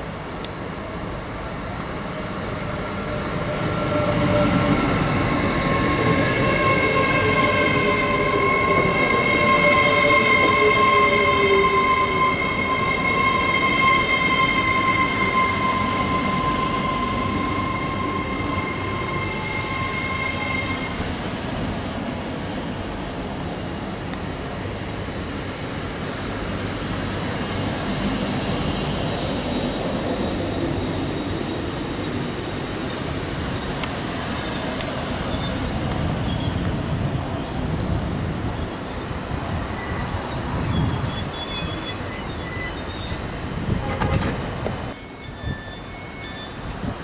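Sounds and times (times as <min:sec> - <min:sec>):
train wheels rumbling on rails: 0:00.0 - 0:47.0
high wheel squeal: 0:02.6 - 0:21.2, 0:28.8 - 0:44.2, 0:44.9 - 0:46.8.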